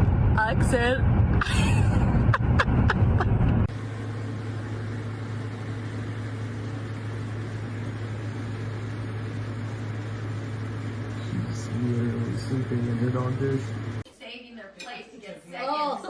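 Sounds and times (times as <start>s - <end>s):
loud low rumble: 0.0s - 3.7s
steady low hum: 0.0s - 14.1s.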